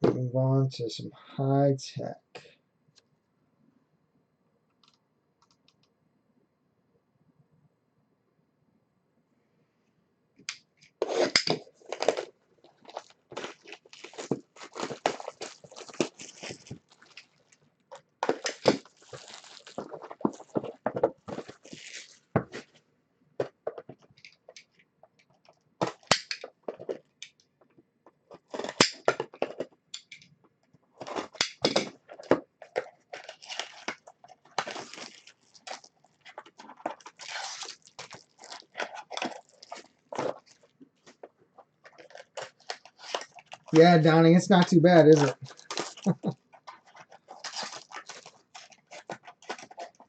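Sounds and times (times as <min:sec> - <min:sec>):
wrappers and cardboard crinkling: 0:11.0 - 0:22.8, 0:31.0 - 0:50.0.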